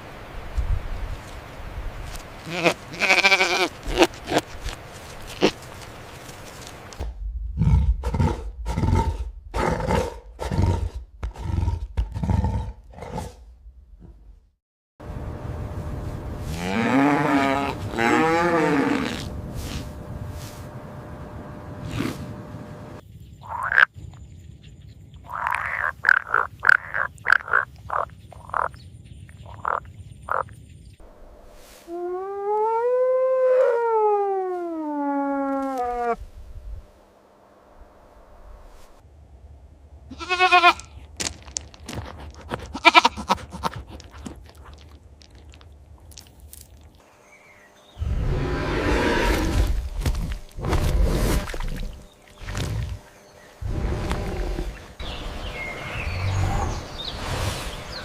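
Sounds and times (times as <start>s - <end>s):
animal calling: 42.6s - 44.8s.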